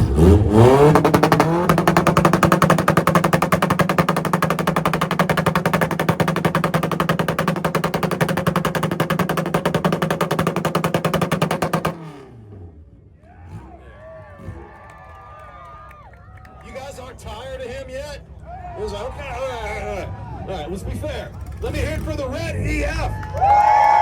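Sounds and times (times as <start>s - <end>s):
exhaust pops and bangs: 0.0s - 12.2s
engine on rev limiter: 0.0s - 14.8s.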